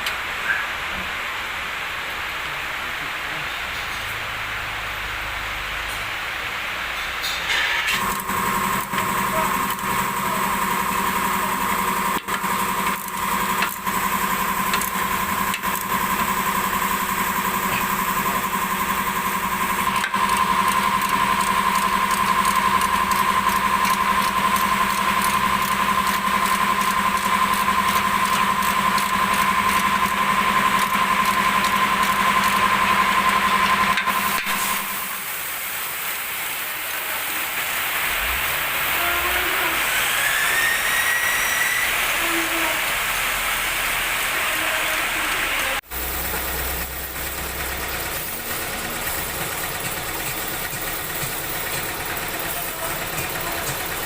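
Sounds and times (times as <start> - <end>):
machine motor whining: 7.9 - 35.2, 36.9 - 54.0.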